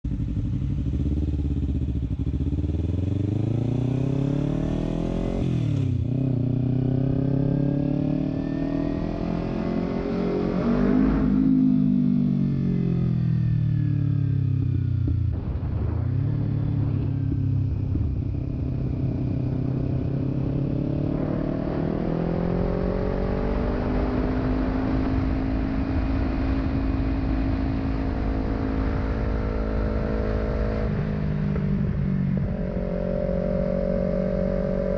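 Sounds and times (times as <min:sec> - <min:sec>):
motorcycle engine accelerating: 0:00.0 - 0:34.9
wind rumble: 0:14.1 - 0:34.9.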